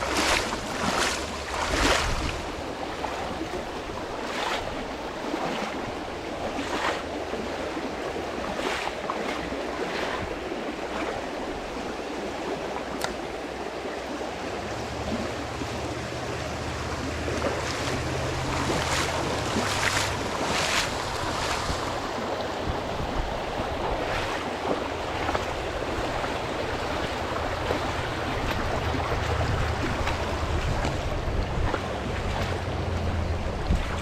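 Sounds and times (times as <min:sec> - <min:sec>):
creek water flowing: 0:00.0 - 0:34.0
water splashing: 0:00.0 - 0:34.0
low steady hum: 0:13.1 - 0:24.0.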